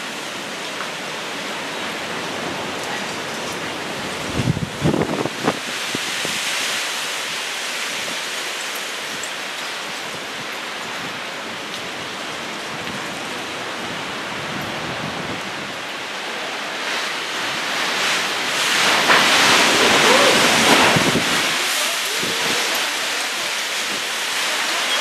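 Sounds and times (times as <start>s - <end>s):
rain falling: 0.0s - 25.0s
wind rushing: 17.3s - 22.7s.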